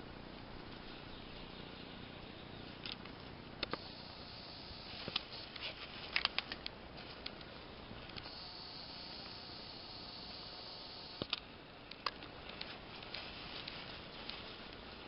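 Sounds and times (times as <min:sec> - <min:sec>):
faint steady hiss: 0:00.0 - 0:15.0
sharp clicks and crackles: 0:02.2 - 0:04.0, 0:05.0 - 0:08.3, 0:11.0 - 0:14.9.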